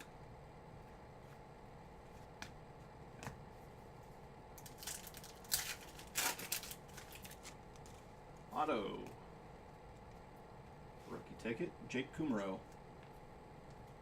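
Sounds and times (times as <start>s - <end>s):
wrapper crinkling and ripping: 4.6s - 8.0s.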